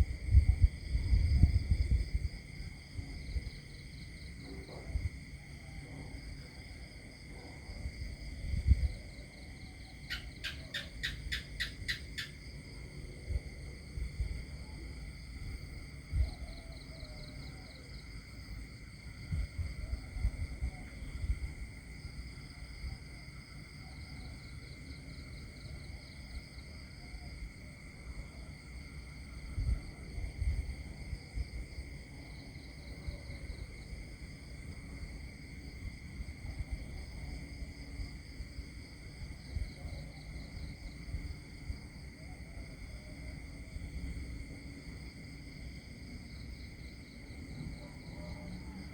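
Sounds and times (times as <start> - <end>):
chorus of crickets: 0.0 - 48.9
insects chirring: 0.0 - 48.9
pulsing insect trill: 8.5 - 13.0
bird calling: 10.1 - 12.3.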